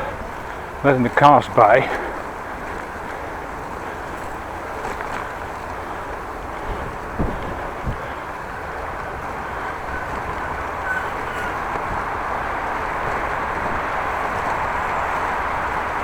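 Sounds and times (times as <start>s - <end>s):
tyres rumbling on road: 0.0s - 16.0s
wind on microphone: 2.2s - 16.0s
short knocks: 6.6s - 8.0s.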